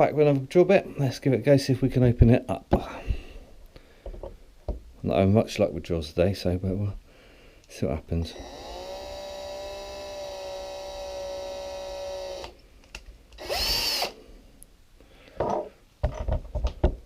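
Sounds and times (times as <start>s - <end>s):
electric drill whining: 8.3s - 12.6s, 13.4s - 14.2s.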